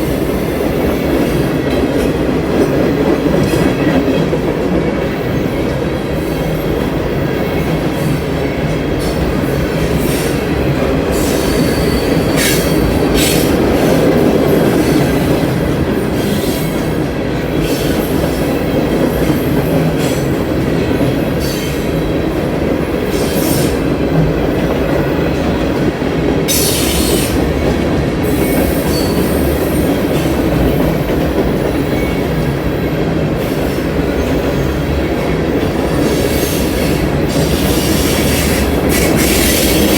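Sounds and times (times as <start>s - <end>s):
train wheels rumbling on rail: 0.0s - 39.9s
high-pitched wheel squeals: 11.2s - 13.4s.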